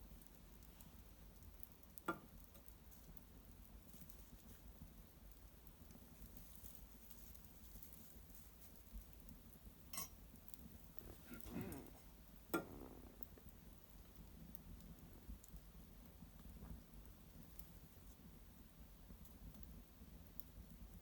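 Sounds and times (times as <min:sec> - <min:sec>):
faint fire crackling: 0:00.0 - 0:21.0
sharp pops of fire: 0:08.9 - 0:16.8.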